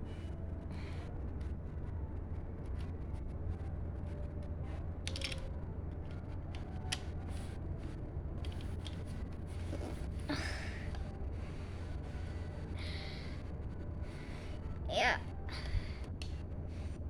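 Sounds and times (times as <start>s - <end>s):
steady low hum: 0.0s - 17.0s
plastic bricks clicking and rattling: 5.1s - 5.5s.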